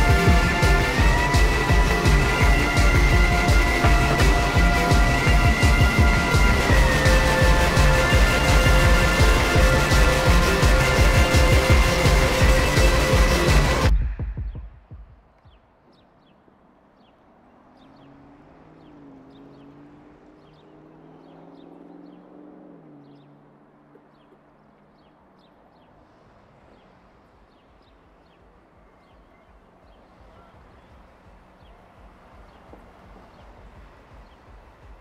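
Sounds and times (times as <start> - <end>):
low vehicle engine hum: 0.0 - 35.0
small birds chirping: 15.3 - 35.0.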